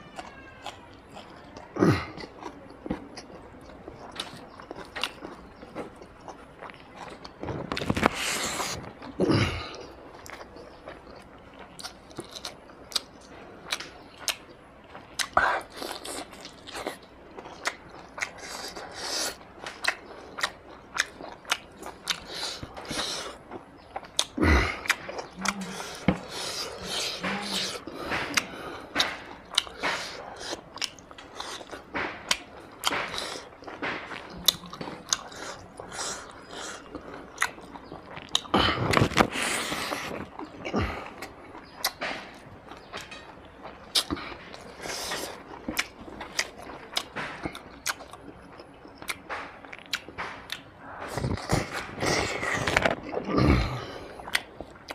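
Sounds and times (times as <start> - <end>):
person chewing food: 0.0 - 54.9
lip smacks: 24.0 - 43.1, 43.9 - 53.3, 54.2 - 54.9.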